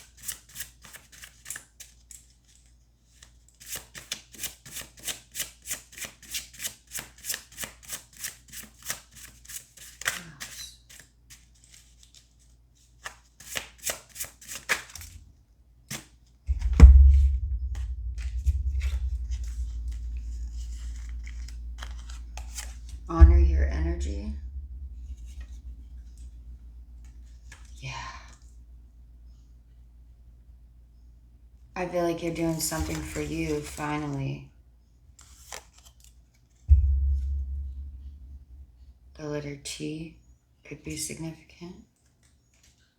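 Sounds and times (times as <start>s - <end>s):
cards being shuffled: 0.0s - 15.2s, 18.8s - 23.1s, 32.3s - 34.2s
loud knock: 16.5s - 26.6s, 36.7s - 39.0s
steady low hum: 16.5s - 33.8s, 36.7s - 39.3s.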